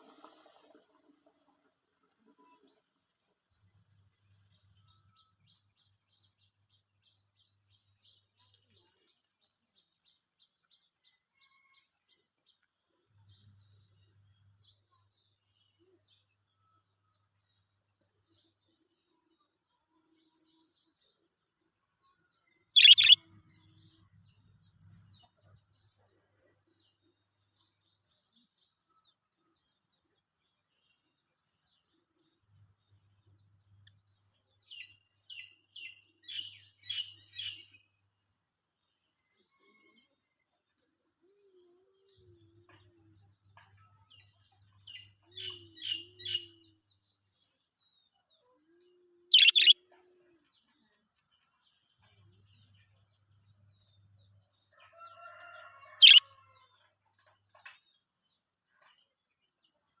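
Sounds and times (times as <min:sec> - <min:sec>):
budgerigars chirping: 0:22.8 - 0:23.2, 0:49.4 - 0:49.8.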